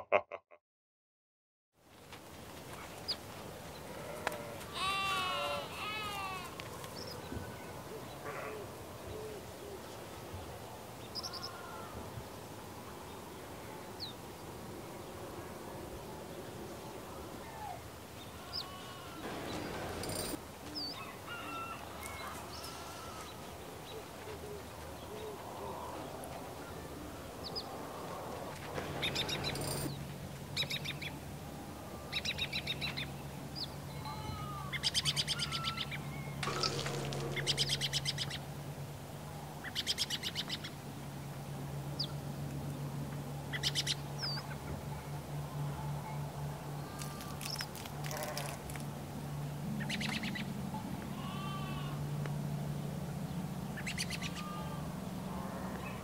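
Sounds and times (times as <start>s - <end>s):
birds chirping: 16.0s - 40.7s
rapid rattling bird calls: 18.2s - 23.3s, 28.6s - 31.1s, 34.8s - 38.5s
steady low hum: 35.9s - 47.2s.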